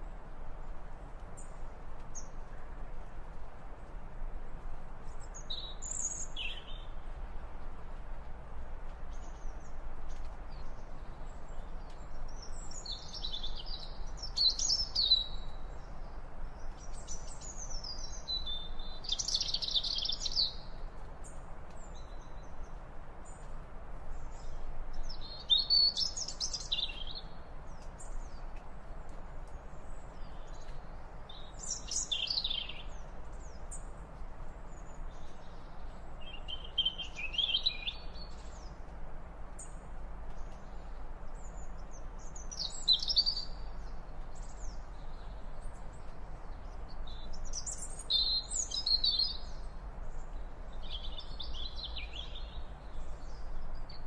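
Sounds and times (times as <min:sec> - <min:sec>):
steady background hiss: 0:00.0 - 0:54.0
bird chirping: 0:05.2 - 0:06.9, 0:10.1 - 0:15.8, 0:16.6 - 0:20.8, 0:24.3 - 0:28.4, 0:29.8 - 0:33.9, 0:34.7 - 0:38.8, 0:39.6 - 0:54.0.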